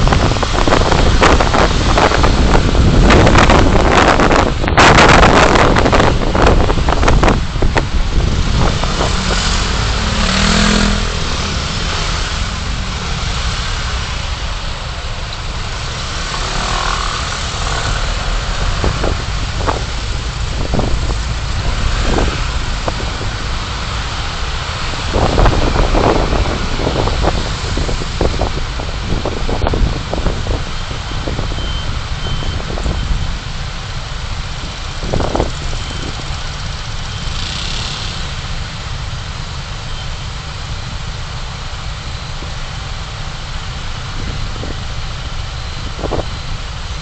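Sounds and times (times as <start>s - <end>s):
wind buffeting microphone: 0.0s - 14.4s, 17.6s - 33.6s, 34.2s - 36.5s, 45.6s - 47.0s
car road and engine noise: 0.0s - 47.0s.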